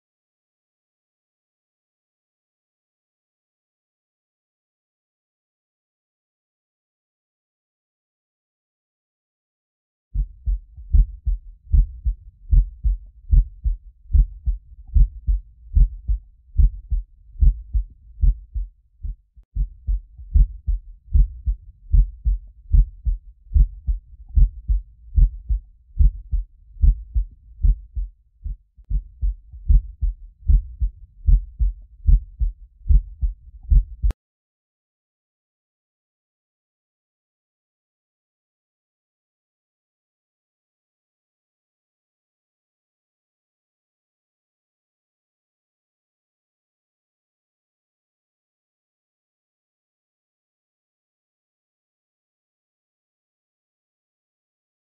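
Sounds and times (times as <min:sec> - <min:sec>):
heartbeat thumps: 0:10.2 - 0:34.2.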